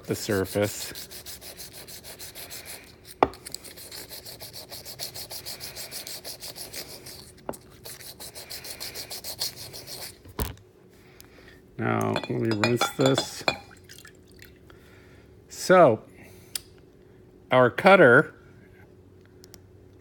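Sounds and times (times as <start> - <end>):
sandpaper rubbing on metal: 0.0 - 10.2.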